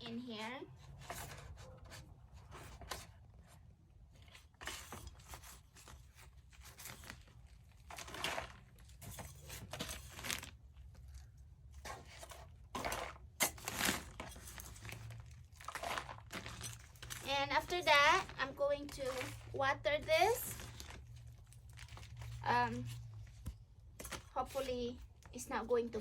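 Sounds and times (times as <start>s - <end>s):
potting soil rustling and crunching: 0.0s - 26.0s.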